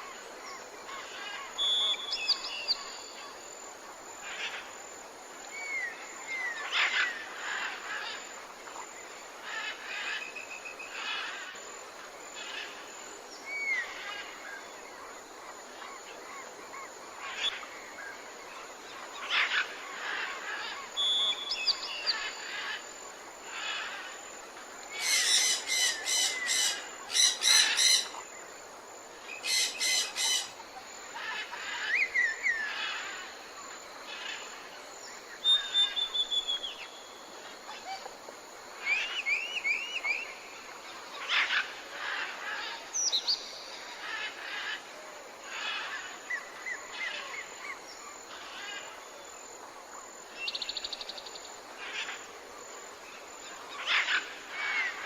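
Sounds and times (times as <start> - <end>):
soft background hiss: 0.0 - 55.0
birds singing and chirping: 25.0 - 28.2.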